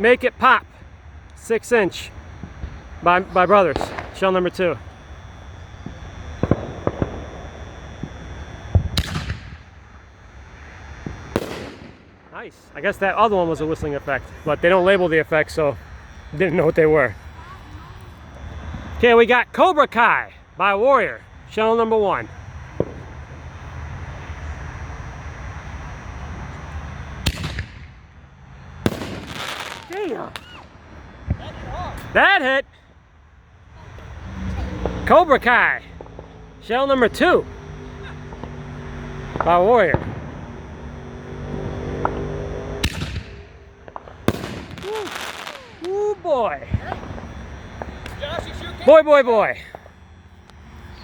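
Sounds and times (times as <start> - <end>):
firework crackle: 0.0 - 32.6, 38.2 - 51.0
firework sharp crack: 2.0 - 12.4, 22.7 - 23.4, 27.1 - 28.2, 28.8 - 32.1, 41.6 - 48.7
firework launch thump: 8.8 - 9.6, 11.0 - 12.1, 27.2 - 28.0, 42.0 - 45.7.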